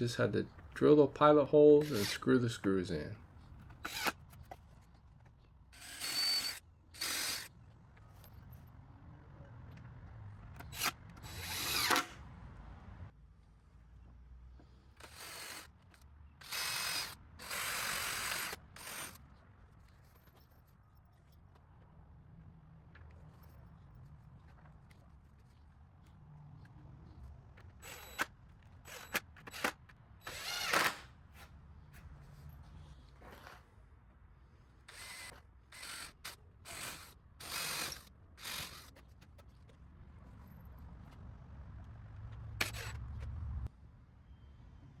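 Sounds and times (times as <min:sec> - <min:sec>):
cordless drill driving screws: 0:01.8 - 0:02.3, 0:03.8 - 0:04.2, 0:05.8 - 0:07.5, 0:10.6 - 0:12.2, 0:15.0 - 0:15.8, 0:16.4 - 0:19.2, 0:27.8 - 0:31.1, 0:34.9 - 0:39.0, 0:42.6 - 0:43.2.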